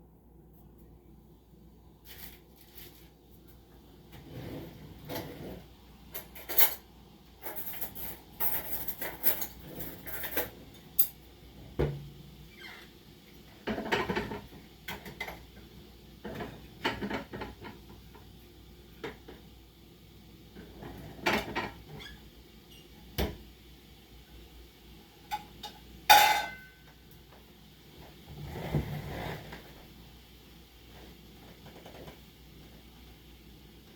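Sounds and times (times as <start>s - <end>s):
dishes and cutlery clattering: 6.1s - 11.2s, 25.3s - 26.8s.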